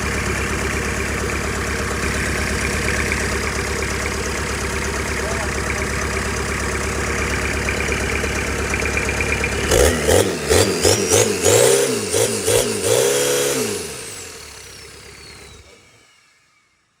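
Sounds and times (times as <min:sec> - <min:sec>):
diesel engine idling and revving: 0:00.0 - 0:17.0.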